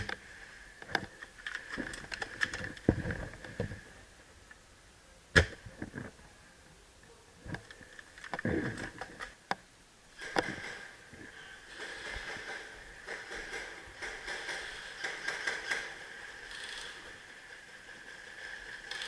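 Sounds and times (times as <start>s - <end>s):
low rustling thuds of movement: 1.8s - 4.1s.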